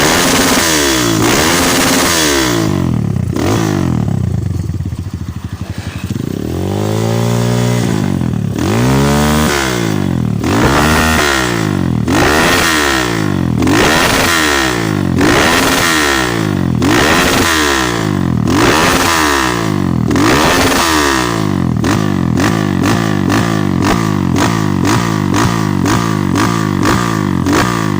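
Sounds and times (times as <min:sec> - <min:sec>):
motorcycle engine revving: 0:00.0 - 0:27.9
motorcycle idling: 0:00.0 - 0:27.9.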